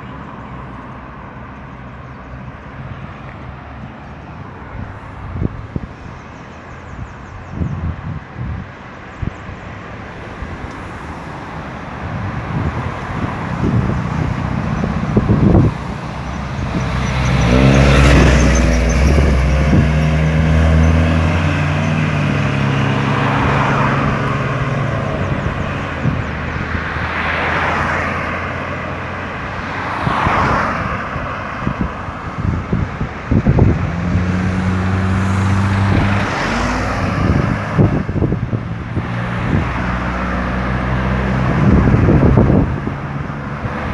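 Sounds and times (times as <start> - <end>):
cars passing on highway: 0.0 - 43.9
heavy vehicle engine rumbling: 0.0 - 43.9.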